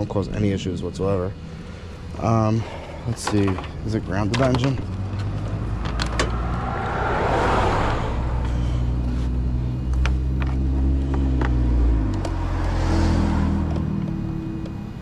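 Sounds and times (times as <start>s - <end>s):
vehicle engine running: 0.0s - 15.0s
light clicks and rustling: 3.1s - 6.3s.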